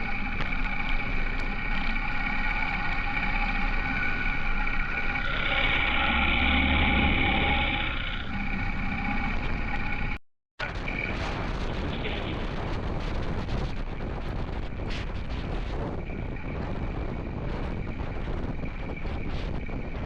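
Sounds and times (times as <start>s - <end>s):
wind buffeting microphone: 10.7s - 20.0s.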